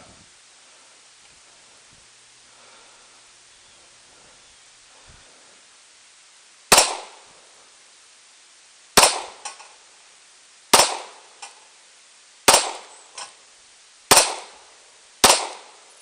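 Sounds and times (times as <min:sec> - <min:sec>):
pistol shots: 0:06.7 - 0:07.2, 0:09.0 - 0:09.4, 0:10.7 - 0:11.2, 0:12.5 - 0:12.9, 0:14.1 - 0:14.6, 0:15.2 - 0:15.8.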